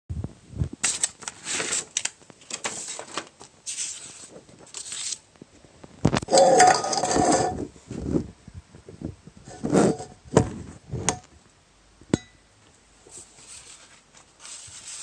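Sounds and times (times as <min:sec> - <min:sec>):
paper rustling and sliding: 0:00.8 - 0:05.3, 0:13.1 - 0:15.0.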